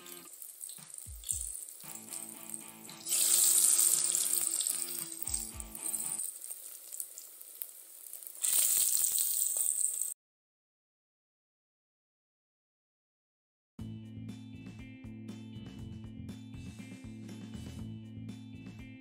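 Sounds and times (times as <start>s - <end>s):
background music: 0.0s - 6.2s, 13.8s - 19.0s
potato wedges sizzling in oil: 0.0s - 10.2s.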